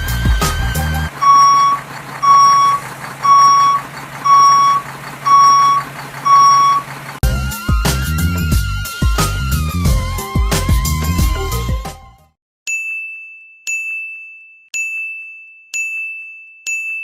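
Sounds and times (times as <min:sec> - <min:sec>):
truck reversing alarm beeps: 0:00.0 - 0:10.2
low engine hum: 0:00.0 - 0:11.7.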